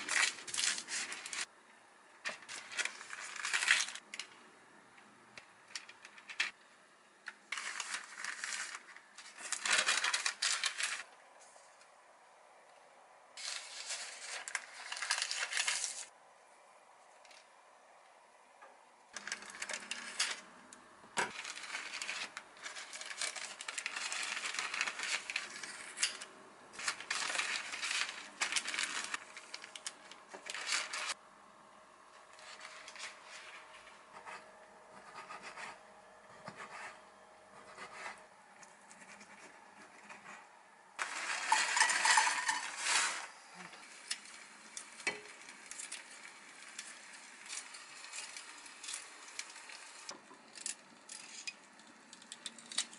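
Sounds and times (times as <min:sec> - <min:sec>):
baking paper rustling: 0:00.0 - 0:01.5, 0:02.2 - 0:04.4, 0:07.4 - 0:11.8, 0:13.4 - 0:16.2, 0:19.2 - 0:20.5, 0:21.2 - 0:31.2, 0:32.1 - 0:35.8, 0:37.6 - 0:52.9
plastic bag crinkling: 0:00.0 - 0:01.5, 0:02.4 - 0:04.0, 0:07.5 - 0:11.1, 0:21.3 - 0:31.2, 0:41.0 - 0:50.1.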